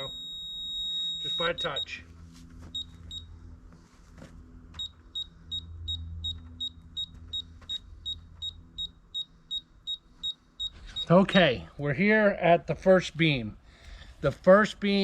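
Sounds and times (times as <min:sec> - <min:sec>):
short high beeps: 0:00.0 - 0:02.0, 0:08.1 - 0:11.6
low steady hum: 0:00.0 - 0:15.0.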